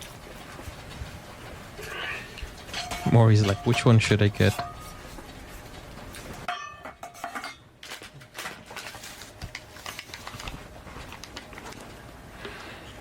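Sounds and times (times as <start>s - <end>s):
utensils tapping and scraping: 0.6s - 11.5s
utensils clinking against dishes: 1.8s - 8.9s.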